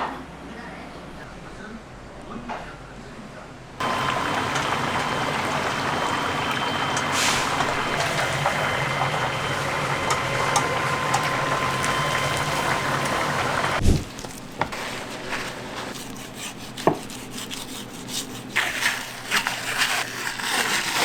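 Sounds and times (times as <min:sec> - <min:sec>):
chicken sizzling in hot oil: 0:03.8 - 0:13.9
thin steady whine: 0:03.8 - 0:14.0.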